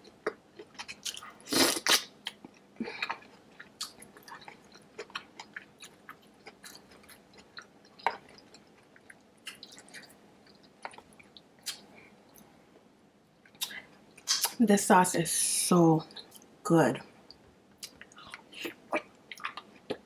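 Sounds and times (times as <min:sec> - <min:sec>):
wet chewing and lip smacking: 0:00.2 - 0:12.5, 0:17.3 - 0:20.0.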